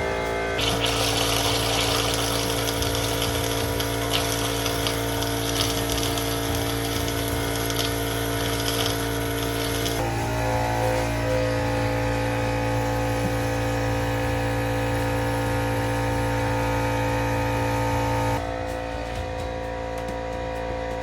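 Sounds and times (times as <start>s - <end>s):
air compressor humming: 0.0s - 21.0s
compressed air hissing: 0.6s - 10.1s.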